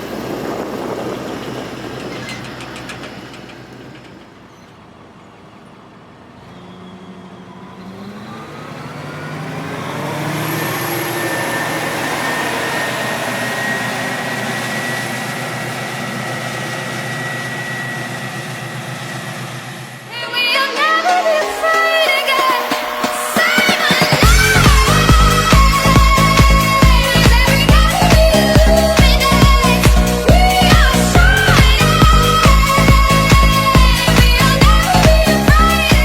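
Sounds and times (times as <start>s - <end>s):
tractor diesel engine: 0.0s - 36.0s
thin high whine: 9.8s - 36.0s.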